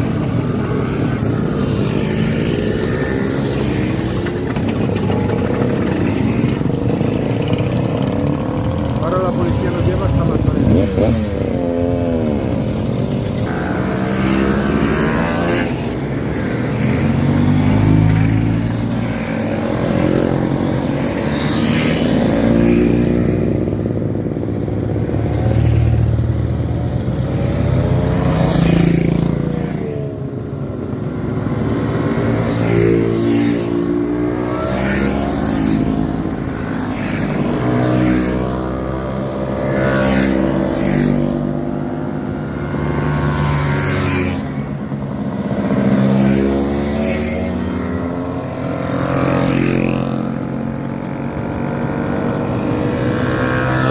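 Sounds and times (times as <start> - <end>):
motorcycle engines revving: 0.0 - 53.9.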